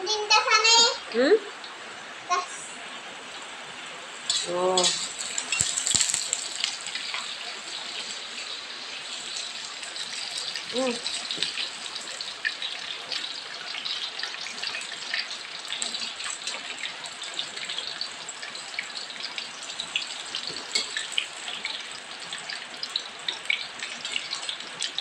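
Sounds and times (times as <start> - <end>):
tofu sizzling in hot oil: 1.6 - 25.0
metal spatula scraping pan: 4.2 - 7.3.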